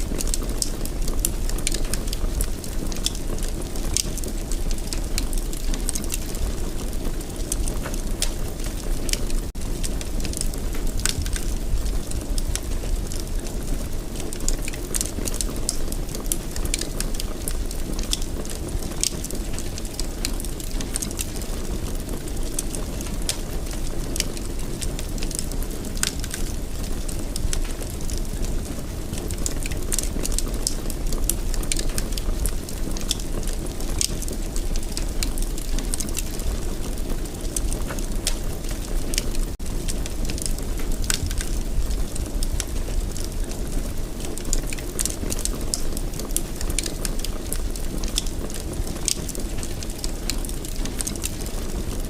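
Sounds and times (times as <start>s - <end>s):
fire crackling and popping: 0.0s - 52.0s
fire flames rumbling: 0.0s - 52.0s.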